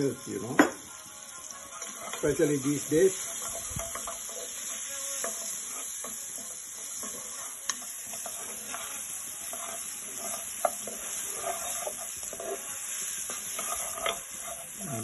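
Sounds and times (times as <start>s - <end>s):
vegetables sizzling in hot oil: 0.0s - 15.0s
wooden spatula scraping pan: 1.8s - 15.0s.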